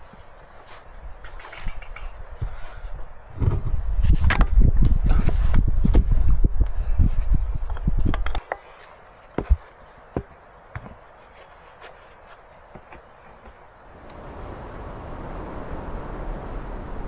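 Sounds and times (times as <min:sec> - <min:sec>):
heavy low rumble: 0:13.9 - 0:17.0.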